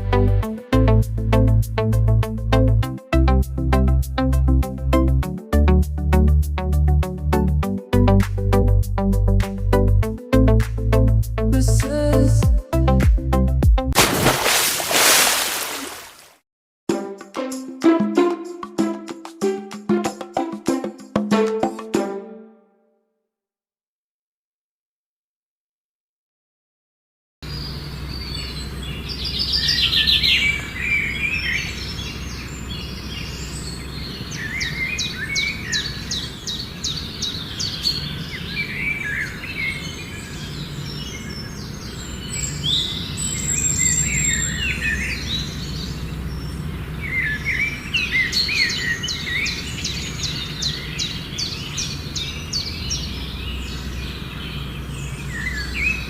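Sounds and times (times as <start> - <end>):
bird chirps: 27.4 - 56.0
birds rapid high trills: 27.5 - 56.0.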